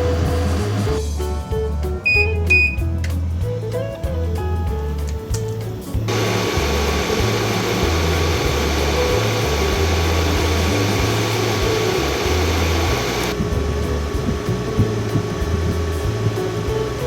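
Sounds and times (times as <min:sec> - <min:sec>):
air conditioner fan rushing: 0:00.0 - 0:17.0
background music with pulsing bass: 0:00.0 - 0:17.0.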